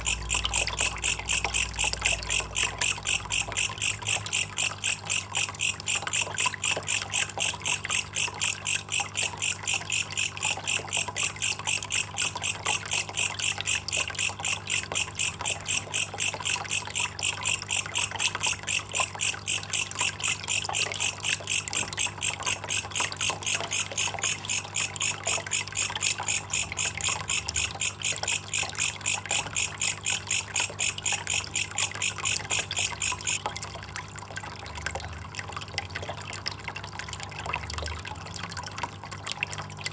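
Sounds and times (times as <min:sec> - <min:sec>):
steady low hum: 0:00.0 - 0:33.3
katydid chirping: 0:00.0 - 0:33.4.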